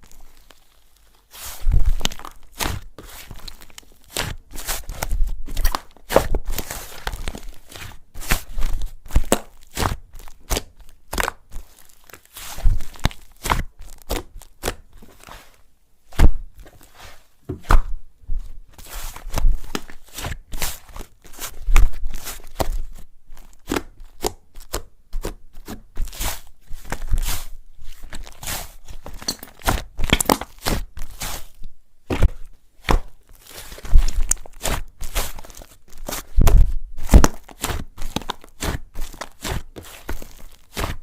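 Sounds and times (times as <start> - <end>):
slime squishing and popping: 29.0 - 31.4, 33.8 - 41.0.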